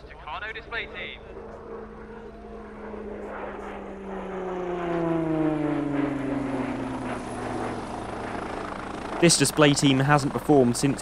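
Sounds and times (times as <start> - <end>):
turboprop airplane flying past: 0.1 - 11.0.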